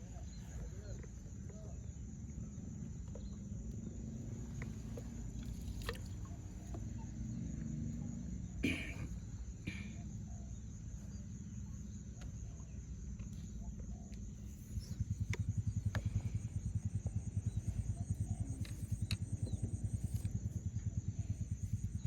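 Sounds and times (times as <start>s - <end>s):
low pulsing engine drone: 0.0s - 22.0s
faint high ticks: 13.1s - 20.9s.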